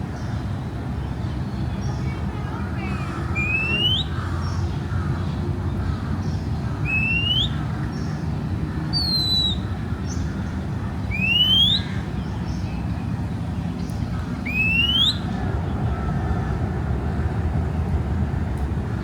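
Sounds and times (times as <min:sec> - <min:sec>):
city traffic rumble: 0:00.0 - 0:19.0
bird whistled calls: 0:03.4 - 0:04.2, 0:06.9 - 0:07.6, 0:09.0 - 0:09.7, 0:11.1 - 0:12.0, 0:14.4 - 0:15.3.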